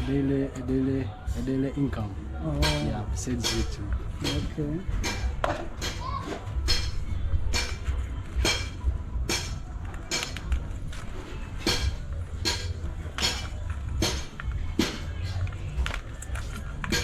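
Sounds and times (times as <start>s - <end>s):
hammer striking metal: 2.6s - 10.5s, 11.6s - 15.3s.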